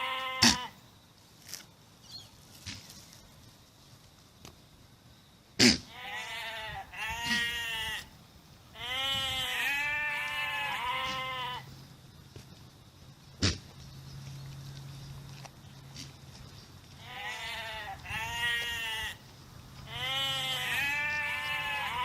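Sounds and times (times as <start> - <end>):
goat bleating: 0.0 - 0.8, 5.9 - 8.1, 8.8 - 11.6, 17.0 - 19.2, 19.9 - 22.0.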